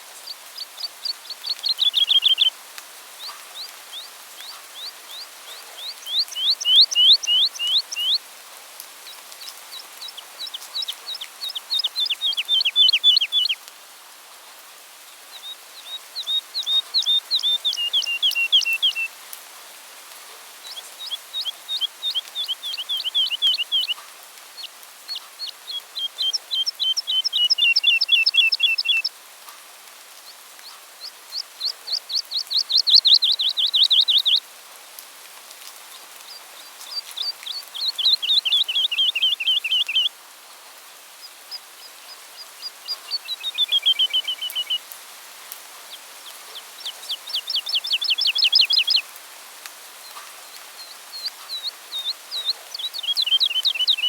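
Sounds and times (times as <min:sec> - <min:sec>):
songbird trilling: 0:00.6 - 0:02.5, 0:05.8 - 0:08.2, 0:10.0 - 0:13.6, 0:15.8 - 0:19.1, 0:20.7 - 0:24.0, 0:25.4 - 0:29.1, 0:31.0 - 0:34.4, 0:36.8 - 0:40.1, 0:41.5 - 0:44.8, 0:46.2 - 0:49.0, 0:50.8 - 0:54.0.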